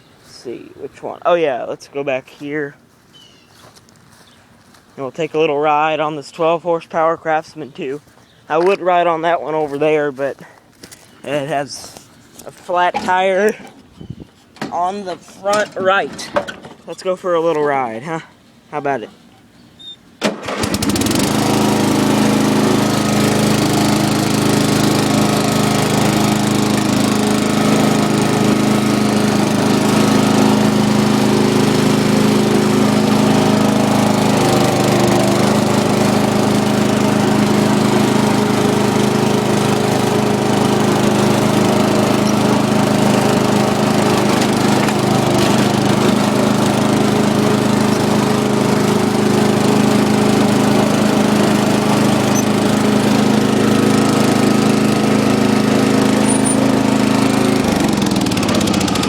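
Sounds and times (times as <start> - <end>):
lawn tractor engine running: 6.8 - 13.9, 20.2 - 59.0.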